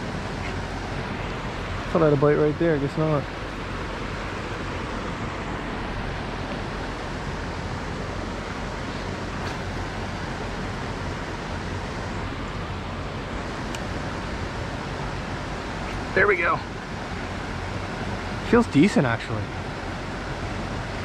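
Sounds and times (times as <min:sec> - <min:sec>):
creek water rushing over rocks: 0:09.4 - 0:10.4.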